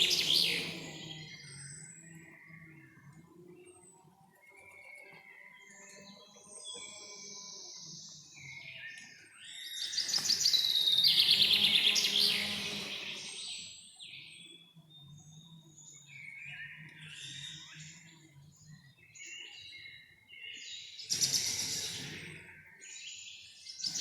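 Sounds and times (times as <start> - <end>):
birds chirping and whistling: 6.7 - 17.9, 19.2 - 24.0.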